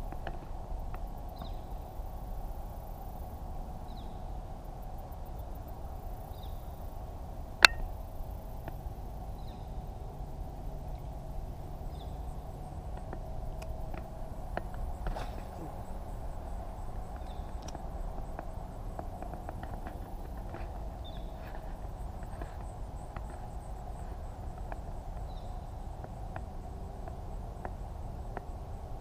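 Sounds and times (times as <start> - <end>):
low background hum: 0.0 - 29.0
sharp click: 7.6 - 7.9
bird chirping: 17.1 - 17.8.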